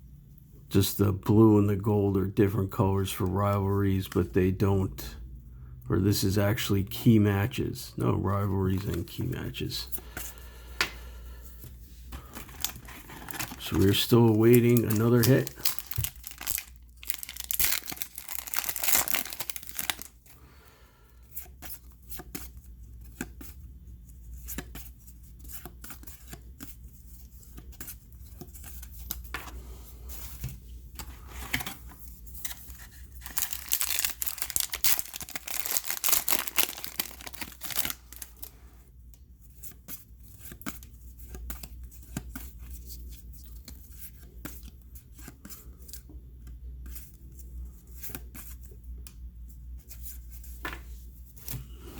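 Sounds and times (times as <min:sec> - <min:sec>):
handling of cards: 0:08.0 - 0:20.3, 0:21.3 - 0:38.6
card pack wrappers tearing: 0:12.2 - 0:20.2, 0:32.8 - 0:38.5.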